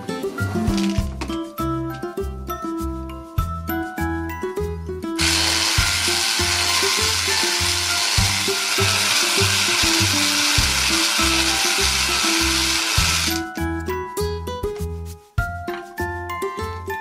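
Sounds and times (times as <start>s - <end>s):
music with rhythmic bass line: 0.0s - 17.0s
toy motor whirring: 5.2s - 13.5s.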